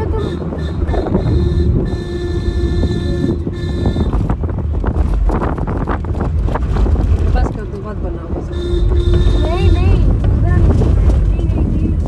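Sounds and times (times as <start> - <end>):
steady tone: 0.0 - 4.5
road and engine rumble: 0.0 - 12.0
wind buffeting microphone: 0.0 - 12.0.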